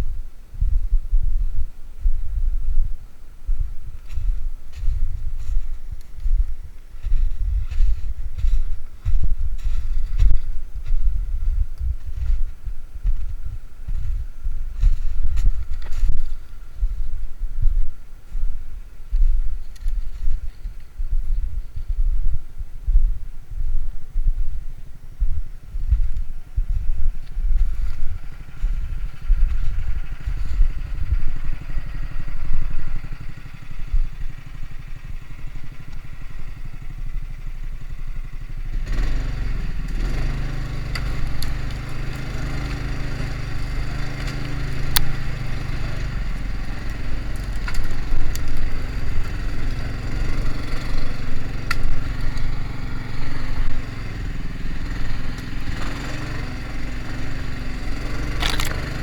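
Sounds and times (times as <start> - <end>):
vehicle engine running: 0.0 - 22.7, 23.5 - 59.0
snow crunching: 3.0 - 22.0, 25.6 - 59.0
sharp cracks: 55.3 - 59.0.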